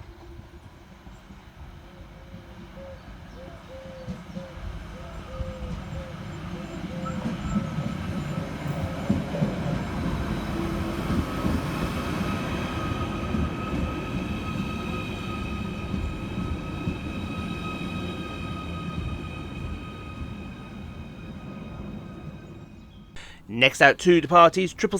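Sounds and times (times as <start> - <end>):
electric train rumble: 5.8 - 23.0.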